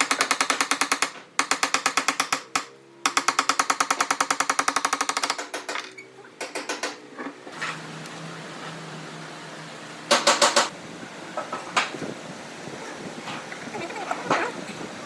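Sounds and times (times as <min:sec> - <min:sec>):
rapid mechanical tapping: 0:00.0 - 0:05.8.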